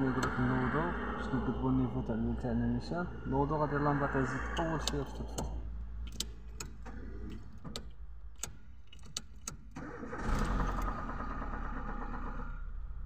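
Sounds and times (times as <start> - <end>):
car engine idling: 0.0 - 13.0
engine starter clicks: 6.1 - 12.9.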